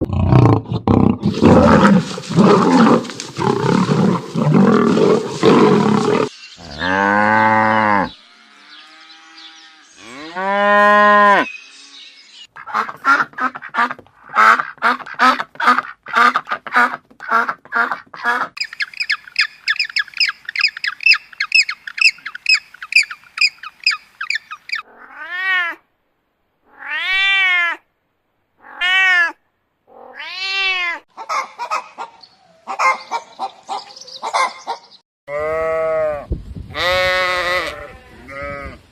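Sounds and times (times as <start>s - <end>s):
rough roar-like animal call: 0.0s - 8.2s
rapid repeated animal calls: 1.2s - 7.0s, 12.6s - 25.3s
fast high chirping: 18.6s - 24.8s.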